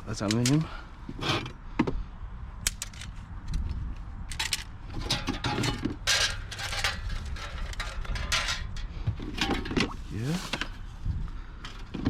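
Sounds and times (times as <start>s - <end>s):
metal tools clinking and scraping: 4.3s - 10.8s.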